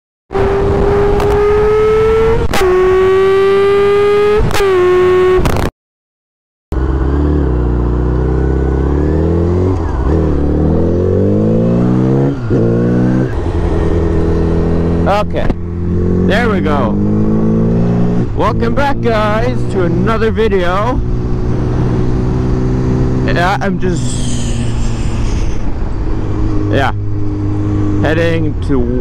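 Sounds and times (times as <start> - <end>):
motorcycle engine accelerating: 0.3 - 5.7, 6.7 - 29.0.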